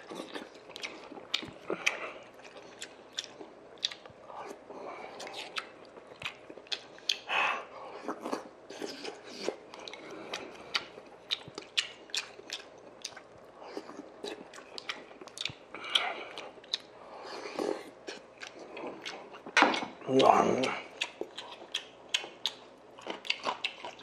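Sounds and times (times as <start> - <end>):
man chewing food: 0.0 - 24.0.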